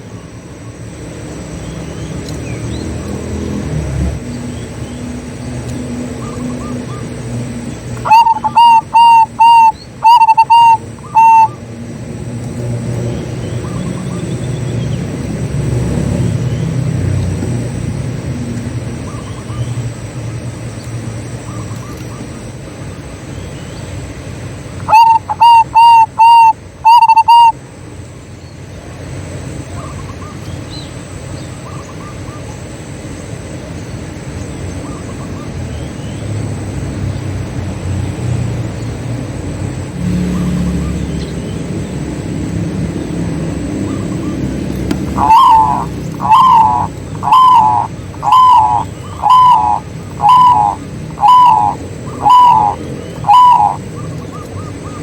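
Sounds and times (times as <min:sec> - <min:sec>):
small birds chirping: 0:04.2 - 0:17.5, 0:18.6 - 0:27.5, 0:40.0 - 0:55.0
dove cooing: 0:06.2 - 0:11.6, 0:24.8 - 0:27.6, 0:43.6 - 0:55.0.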